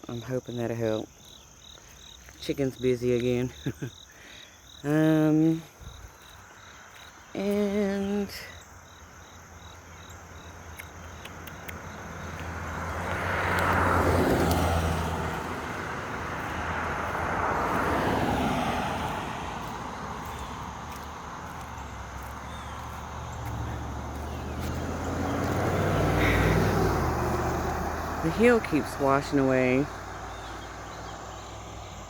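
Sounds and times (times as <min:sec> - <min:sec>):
vehicle passing by: 0:09.2 - 0:32.0.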